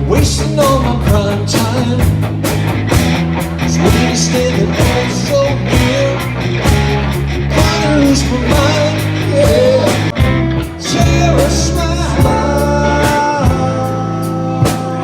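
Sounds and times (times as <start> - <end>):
rock song on car stereo: 0.0 - 15.0.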